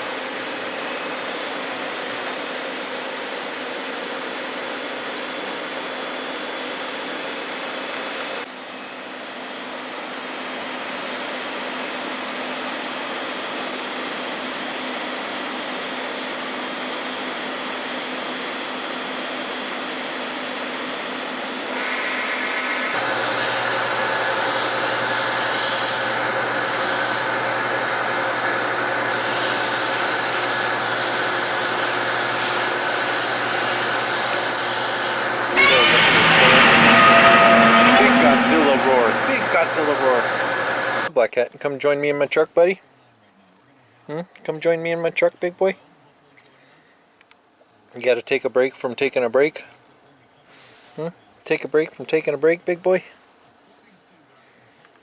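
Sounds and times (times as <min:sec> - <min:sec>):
machine hum and whoosh: 0:35.1 - 0:41.1
steady tones: 0:35.2 - 0:41.1.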